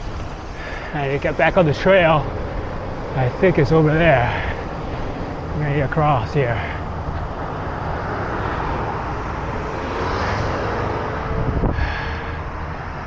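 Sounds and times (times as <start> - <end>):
high whine: 0.0 - 9.3
wind noise: 0.0 - 12.6
traffic rushing: 0.0 - 13.0
vehicle passing: 0.0 - 13.0.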